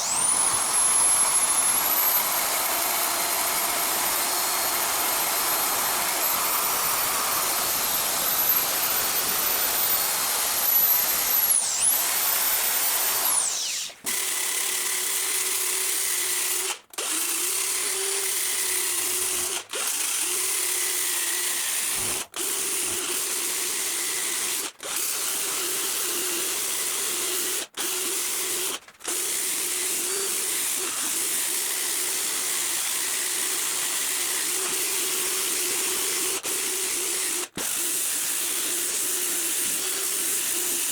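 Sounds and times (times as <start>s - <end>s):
electric power tool whining: 0.0s - 15.0s.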